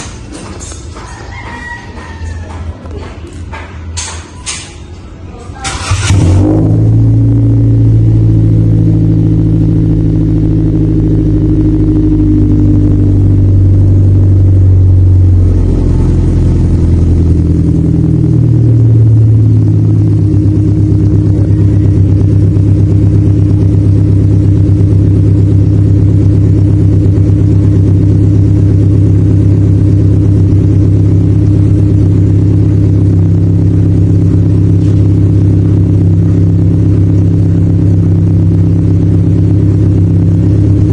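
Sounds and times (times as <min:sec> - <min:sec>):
car engine idling: 0:05.7 - 0:40.9.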